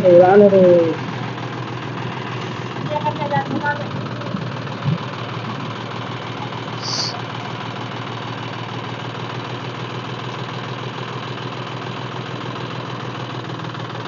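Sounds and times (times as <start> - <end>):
tractor diesel engine idling: 0.0 - 14.0
short hiss: 6.8 - 7.2.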